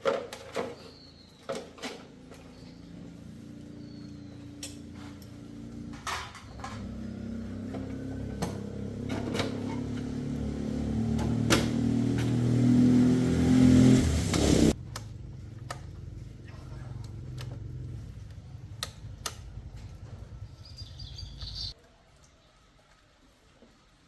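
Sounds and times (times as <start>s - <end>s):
clicks: 16.9s - 20.3s.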